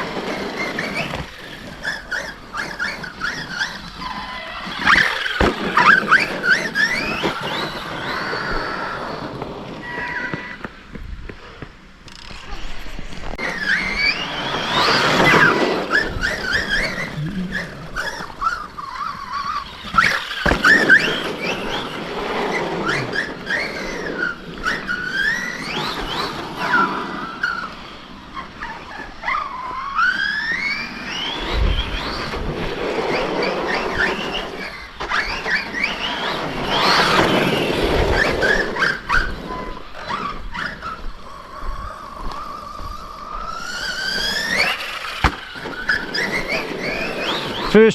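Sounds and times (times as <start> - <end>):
electric motor whining: 0.0 - 11.0, 12.0 - 47.9
tyres rushing on dirt: 0.0 - 47.9.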